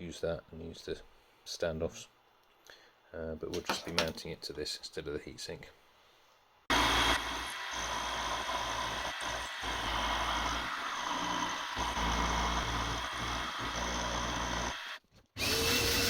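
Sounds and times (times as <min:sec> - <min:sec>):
milling machine cutting: 0:06.7 - 0:16.0.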